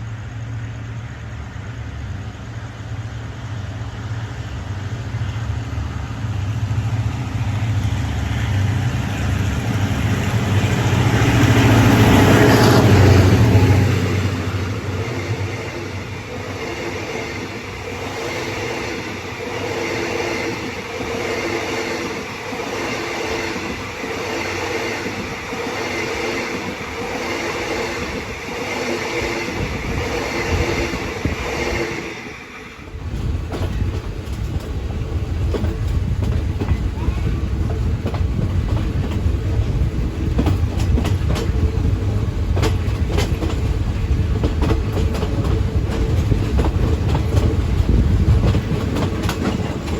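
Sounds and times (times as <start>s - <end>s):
deep train rumble: 0.0s - 49.9s
train wheel and rail noise: 0.0s - 49.9s
wheels clicking over rails: 33.0s - 49.9s.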